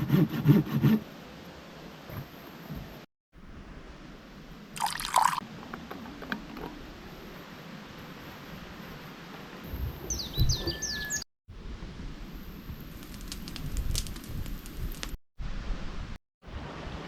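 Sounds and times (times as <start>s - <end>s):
small bird chirping: 10.0s - 11.2s
bird whistle: 10.1s - 11.2s
low rustling and rumbling: 11.5s - 17.0s
sharp clicks and crackles: 13.0s - 15.2s.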